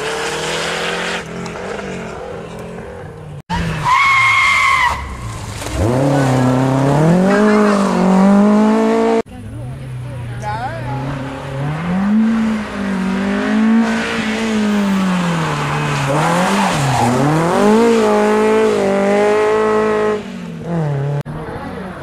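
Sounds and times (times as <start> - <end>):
car engine revving: 4.9 - 22.0.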